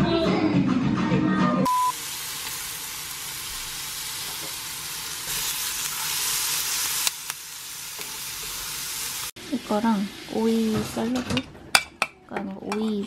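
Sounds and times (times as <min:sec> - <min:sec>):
meat sizzling in a frying pan: 0:01.7 - 0:10.9.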